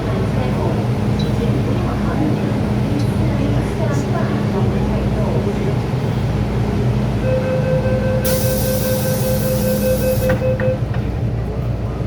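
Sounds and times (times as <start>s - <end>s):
rapid pulsing door warning beep: 7.3s - 10.9s
air hiss: 8.3s - 10.2s.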